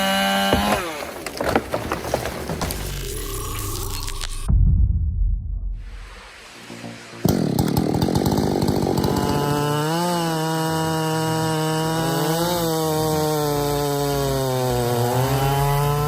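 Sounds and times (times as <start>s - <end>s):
chainsaw cutting wood: 0.0s - 4.0s, 7.2s - 16.0s.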